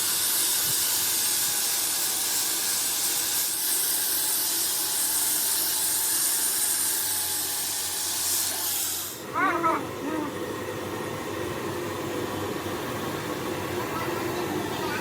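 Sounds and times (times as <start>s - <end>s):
steady hiss of spray: 0.0s - 9.3s.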